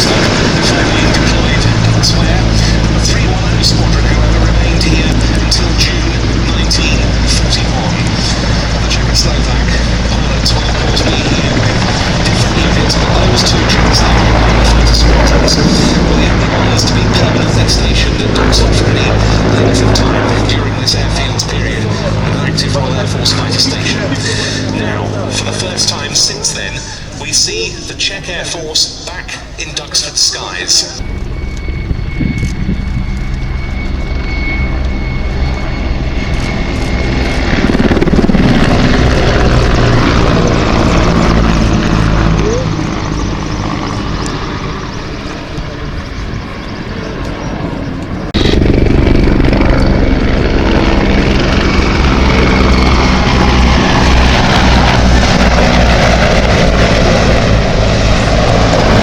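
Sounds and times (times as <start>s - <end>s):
helicopter rotor beating: 0.0s - 59.0s.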